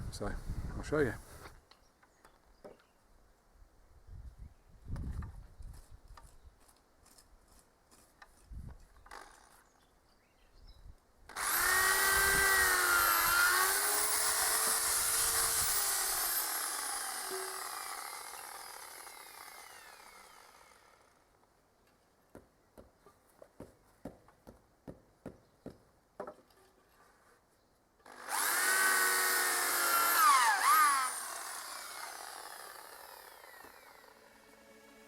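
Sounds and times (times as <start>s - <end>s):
power drill boring wood: 11.3s - 21.3s, 28.0s - 34.3s.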